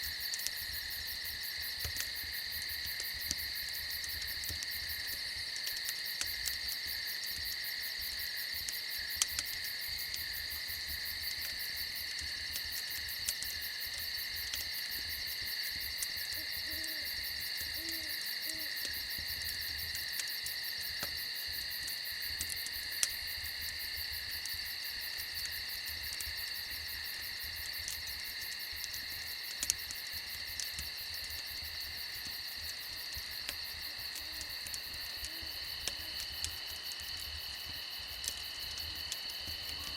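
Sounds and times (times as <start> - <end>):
crickets trilling: 0.0 - 39.9
owl hoots: 16.4 - 17.1, 17.7 - 18.7.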